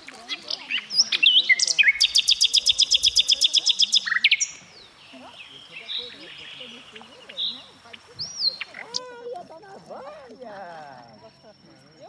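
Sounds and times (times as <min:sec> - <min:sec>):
bird singing: 0:00.0 - 0:09.4.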